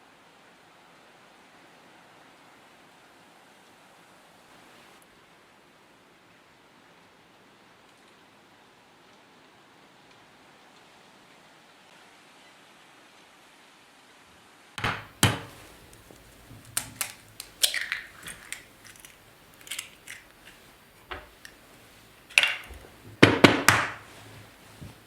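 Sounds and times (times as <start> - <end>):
objects knocking and clattering: 14.8 - 25.0.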